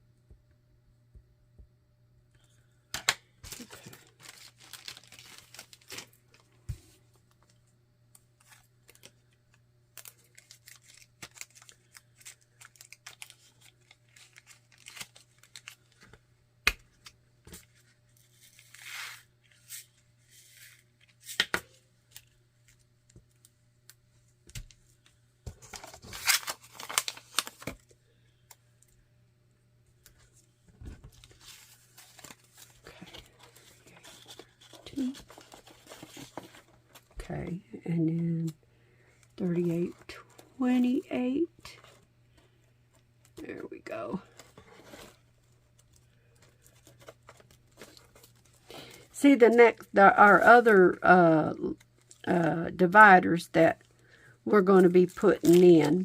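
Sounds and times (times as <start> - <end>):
plastic bags crinkling: 3.4 - 6.6, 9.9 - 16.1, 43.3 - 50.6, 54.8 - 56.0.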